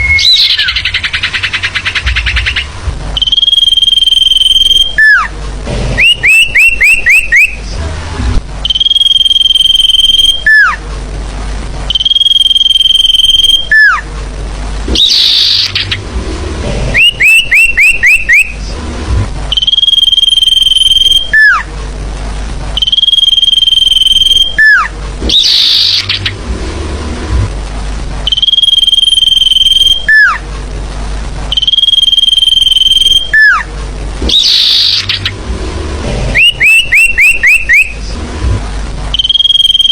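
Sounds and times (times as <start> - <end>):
rising bird chirps: 0.0 - 5.3, 6.0 - 7.6, 14.9 - 16.1, 16.9 - 18.7, 22.8 - 26.4, 31.6 - 35.4, 36.2 - 38.1
sharp down-slurred bird calls: 0.0 - 5.3, 6.0 - 7.7, 14.9 - 16.1, 16.9 - 18.7, 22.8 - 26.4, 31.6 - 35.4, 36.3 - 38.0
whistled bird notes: 0.0 - 5.3, 6.0 - 7.7, 8.6 - 10.8, 11.9 - 14.0, 14.9 - 16.0, 16.9 - 18.7, 19.5 - 21.7, 22.8 - 26.4, 28.3 - 30.4, 31.5 - 35.4, 36.3 - 38.1, 39.2 - 39.9
harsh bird call bursts: 0.0 - 5.4, 14.9 - 16.0, 16.9 - 18.7, 22.8 - 26.4, 31.6 - 35.4, 36.3 - 38.1.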